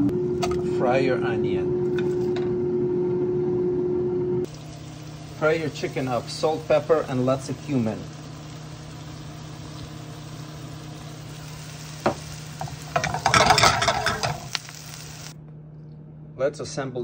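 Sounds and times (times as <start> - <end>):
low hum: 0.0 - 11.5
food sizzling in a pan: 4.5 - 15.4.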